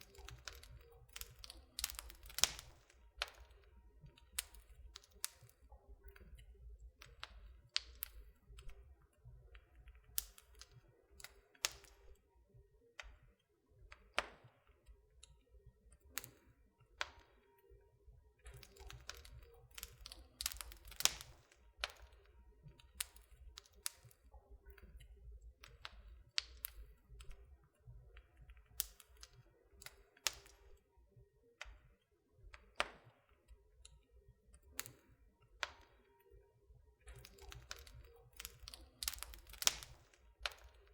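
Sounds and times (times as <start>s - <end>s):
wood fire crackling and popping: 0.0s - 12.2s, 18.4s - 30.8s, 34.6s - 36.1s, 37.0s - 40.9s.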